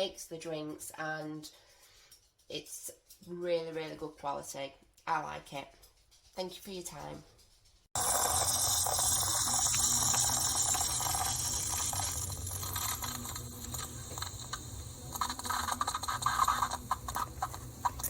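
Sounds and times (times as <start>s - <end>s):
coffee machine sputtering: 8.0s - 18.0s
hot liquid streaming into cup: 8.0s - 18.0s
pump humming: 8.0s - 18.0s.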